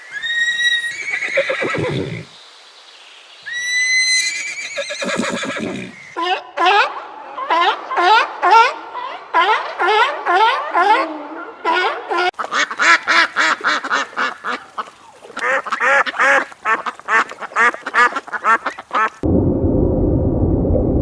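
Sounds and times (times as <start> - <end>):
ducks quacking: 6.2 - 19.2
steady low rumble: 19.2 - 21.0.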